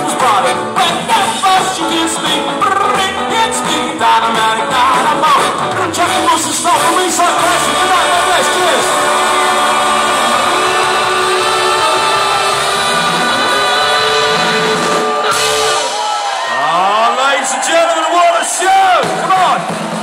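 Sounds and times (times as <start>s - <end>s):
person singing: 0.0s - 15.1s
rock band playing: 0.0s - 20.0s
voices whooping: 7.4s - 19.1s.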